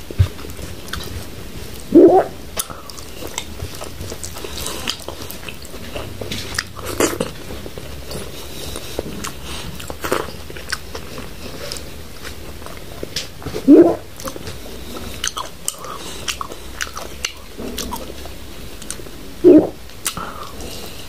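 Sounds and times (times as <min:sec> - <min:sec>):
open-mouthed chewing: 0:00.0 - 0:21.0
wet mouth clicks and lip smacks: 0:19.6 - 0:20.3.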